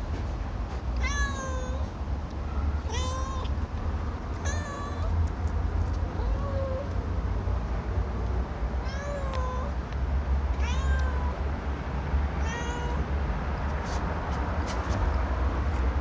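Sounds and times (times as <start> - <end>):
cat meowing: 1.0 - 1.9, 2.7 - 3.5, 4.4 - 5.2, 8.8 - 9.8, 10.6 - 11.4, 12.4 - 13.0.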